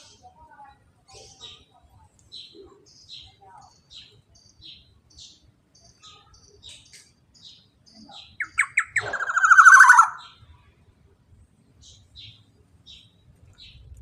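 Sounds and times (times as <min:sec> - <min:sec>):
faint high bird chirps: 0:01.1 - 0:10.5
bird rattling trill: 0:08.4 - 0:10.2
loud sharp bird notes: 0:08.4 - 0:10.4.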